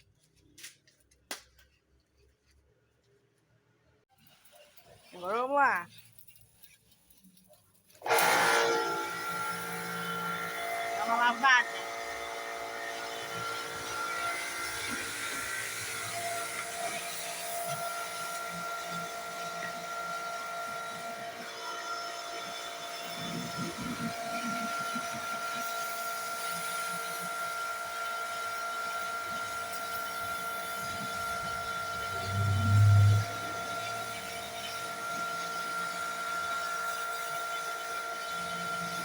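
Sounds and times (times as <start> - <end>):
pressure washer motor whine: 8.0 - 39.0
high-pressure water spray hissing: 8.1 - 39.0.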